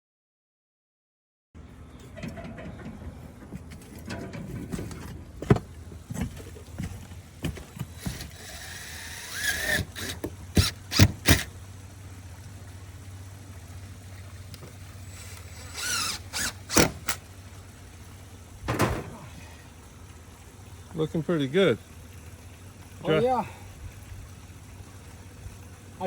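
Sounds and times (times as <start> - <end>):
low steady hum: 1.6 - 26.0
scraping: 2.0 - 11.5.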